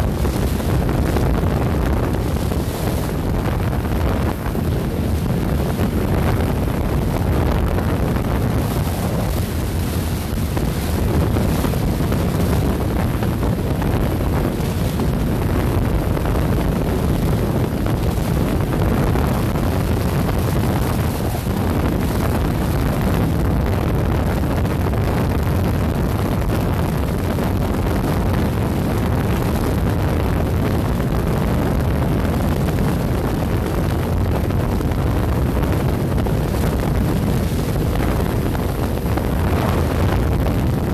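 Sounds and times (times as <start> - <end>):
road noise: 0.0 - 15.4, 16.3 - 23.5, 36.9 - 40.9
wind rush on microphone: 0.0 - 40.9.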